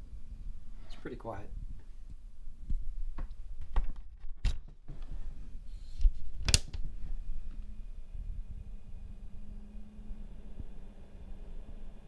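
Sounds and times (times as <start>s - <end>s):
computer fans humming: 6.4s - 12.0s.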